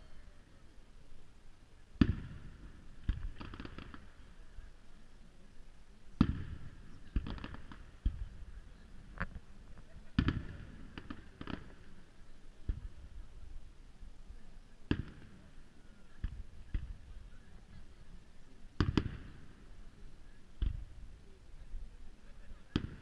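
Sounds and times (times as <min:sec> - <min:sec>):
small sharp firework pops: 0:02.0 - 0:04.2, 0:06.2 - 0:12.0, 0:12.6 - 0:13.1, 0:14.8 - 0:15.4, 0:16.2 - 0:17.3, 0:18.8 - 0:19.6, 0:20.6 - 0:21.0, 0:22.7 - 0:23.0
firework bangs: 0:02.0 - 0:04.3, 0:06.2 - 0:08.6, 0:10.0 - 0:12.0, 0:18.8 - 0:19.7.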